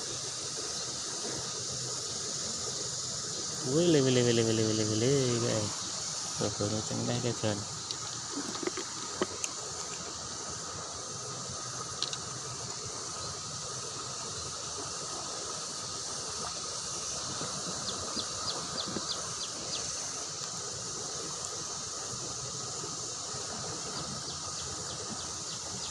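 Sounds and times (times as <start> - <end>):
insect drone: 0.0 - 25.9
river water rushing: 0.1 - 25.9.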